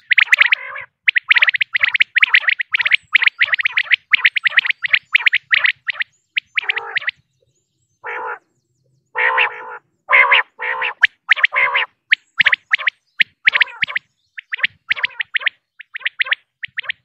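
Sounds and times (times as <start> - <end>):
quail rasping croaky calls: 0.0 - 7.2, 8.0 - 8.4, 9.1 - 17.0
quail sharp notes: 0.0 - 7.2, 9.2 - 17.0.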